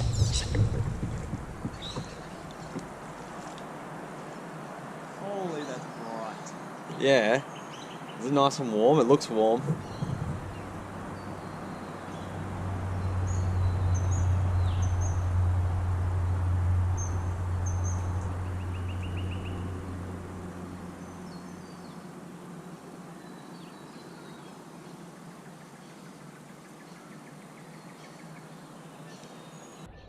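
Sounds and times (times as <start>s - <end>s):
birds chirping: 0.0s - 30.0s
low steady hum: 9.6s - 26.4s.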